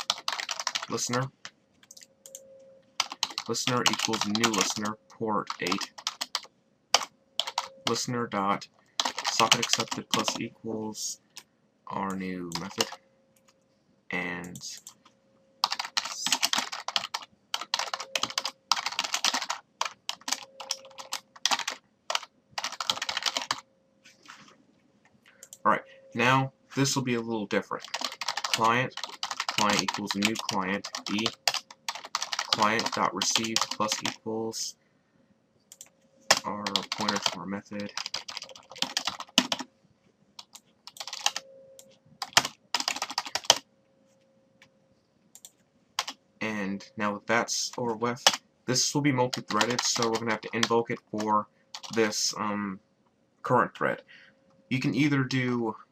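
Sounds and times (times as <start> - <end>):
fast typing on keyboard: 0.0 - 2.1, 3.0 - 10.4, 12.0 - 13.0, 15.6 - 23.6, 27.6 - 34.3, 35.7 - 39.7, 40.4 - 41.4, 42.2 - 43.6, 45.4 - 46.2, 47.6 - 52.2
faint steady hum: 0.0 - 55.9.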